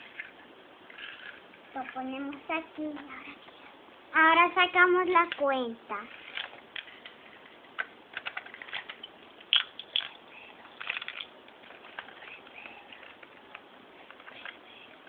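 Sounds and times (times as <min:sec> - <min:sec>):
faint background hiss: 0:00.0 - 0:15.0
small objects clicking and tapping: 0:06.2 - 0:15.0.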